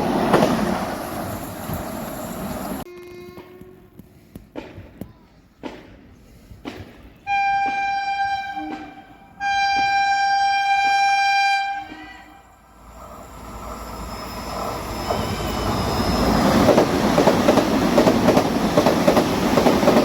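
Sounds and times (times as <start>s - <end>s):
train horn blasts: 2.9s - 4.0s, 7.3s - 12.6s.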